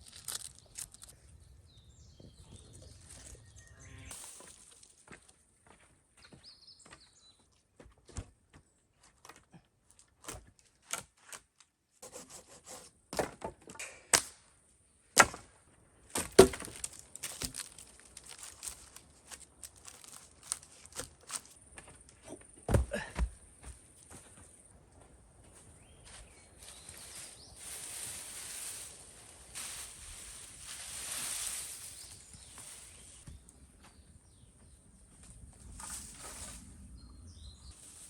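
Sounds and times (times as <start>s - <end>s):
wooden sticks knocking together: 16.2s - 21.5s.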